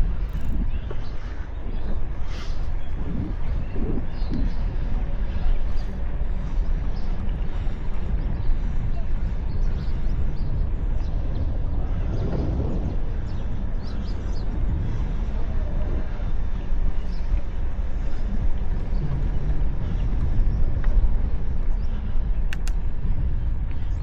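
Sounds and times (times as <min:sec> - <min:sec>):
wind rumble on microphone: 0:00.0 - 0:24.0
sharp clicks: 0:22.5 - 0:22.8.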